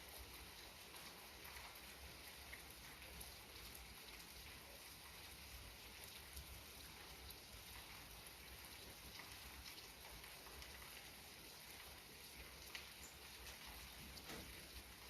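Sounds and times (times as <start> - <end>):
gentle rain hiss: 0.0 - 15.0
raindrop ticks: 12.6 - 14.9.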